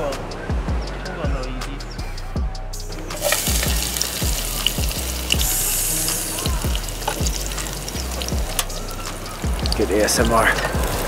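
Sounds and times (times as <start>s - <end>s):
background music with steady beat: 0.0s - 11.0s
garlic sizzling in hot oil: 3.2s - 10.0s.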